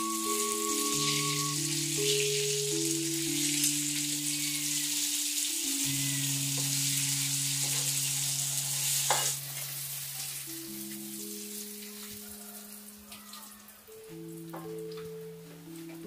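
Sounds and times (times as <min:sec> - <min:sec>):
food sizzling in hot oil: 0:00.0 - 0:12.8
slow background music: 0:00.0 - 0:16.0.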